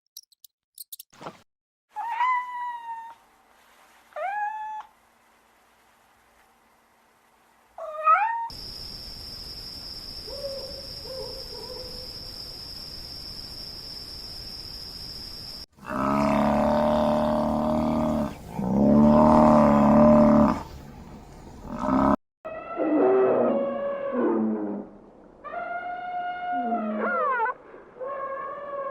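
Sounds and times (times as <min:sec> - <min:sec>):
animal calls: 0:25.4 - 0:28.9.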